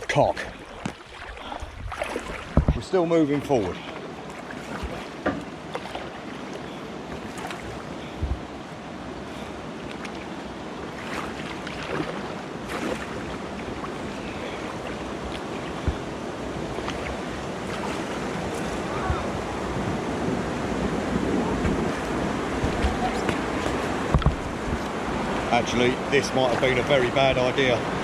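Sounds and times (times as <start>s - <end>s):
water rushing and splashing: 0.0s - 28.0s
wind on microphone: 1.4s - 2.8s, 7.2s - 8.6s, 13.4s - 25.7s
sharp knocks: 24.1s - 24.5s.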